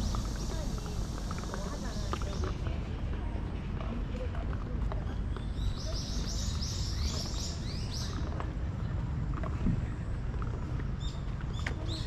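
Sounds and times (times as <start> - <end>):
small bird chirping: 5.4 - 8.2.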